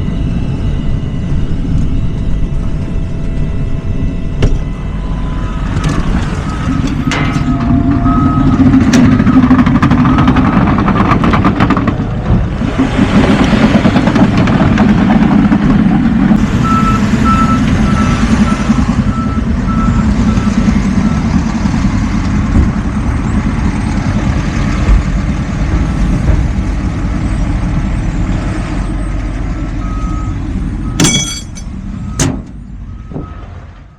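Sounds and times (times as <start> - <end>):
backup alarm beeping: 0.0 - 10.5, 16.5 - 21.4, 29.8 - 32.3
garbage truck engine running: 0.0 - 33.9.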